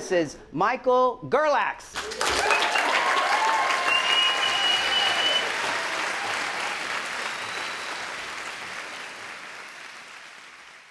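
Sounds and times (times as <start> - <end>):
crowd applauding and cheering: 2.0 - 10.9
high steady whistle: 3.7 - 5.6, 6.6 - 8.4.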